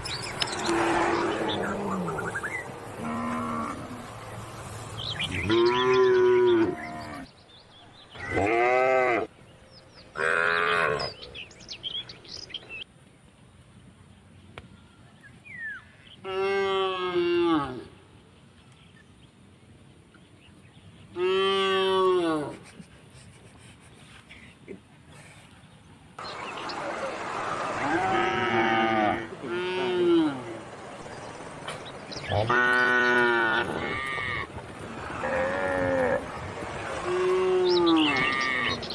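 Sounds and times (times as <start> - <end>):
cattle mooing: 3.0 - 4.1, 27.1 - 30.7, 32.2 - 38.9.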